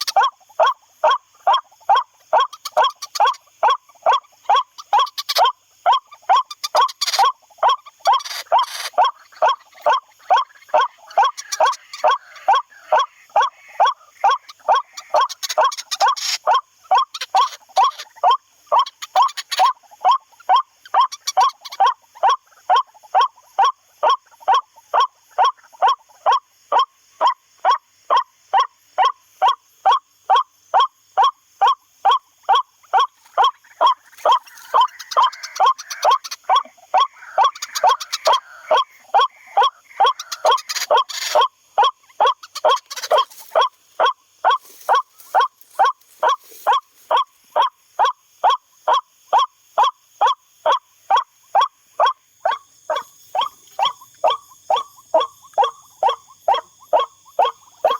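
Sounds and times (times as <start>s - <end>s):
rough rustling noise: 43.0s - 43.9s, 44.5s - 47.3s.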